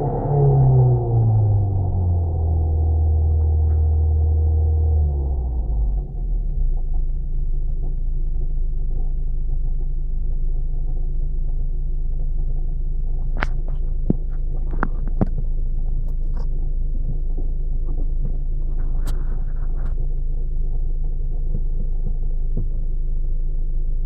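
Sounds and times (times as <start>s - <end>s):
car drivetrain rumble and hum: 0.0s - 24.0s.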